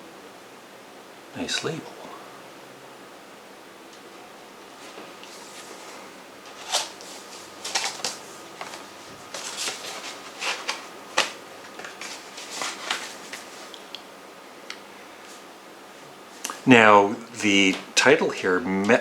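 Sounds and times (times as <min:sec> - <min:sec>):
paper rustling: 0:04.7 - 0:13.9.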